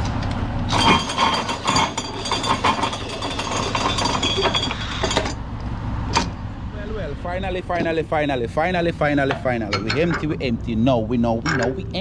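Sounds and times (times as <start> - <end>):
strap winder rattling: 0.7 - 5.4.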